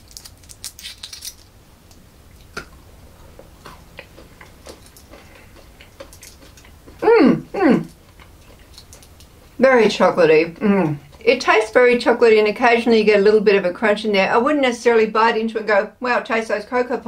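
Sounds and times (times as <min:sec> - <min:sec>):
chewing crunchy chocolate: 0:02.3 - 0:11.8.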